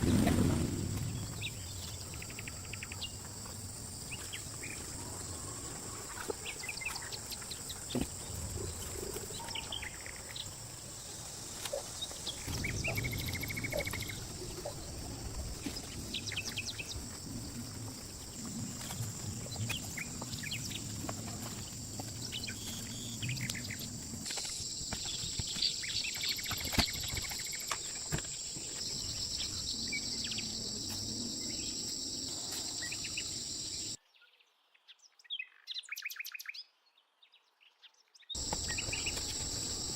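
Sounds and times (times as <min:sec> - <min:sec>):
birds chirping: 0:00.0 - 0:17.6, 0:38.4 - 0:39.9.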